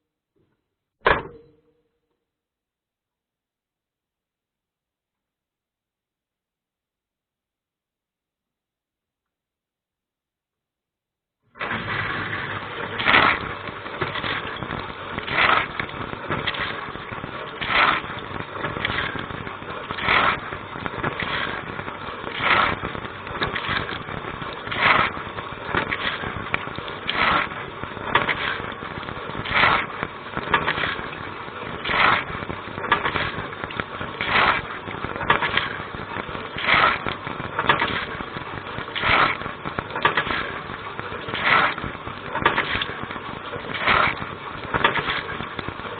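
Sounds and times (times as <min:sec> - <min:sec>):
dishwasher spraying water: 0:11.6 - 0:45.3.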